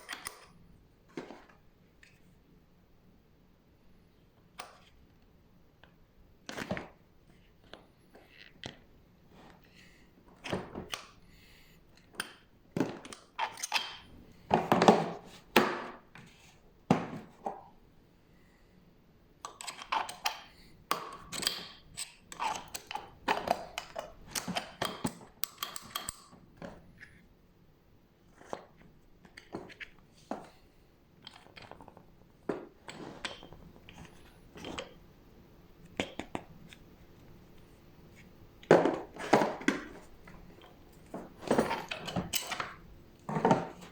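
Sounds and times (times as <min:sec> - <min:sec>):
hard objects clattering: 0:38.6 - 0:43.9.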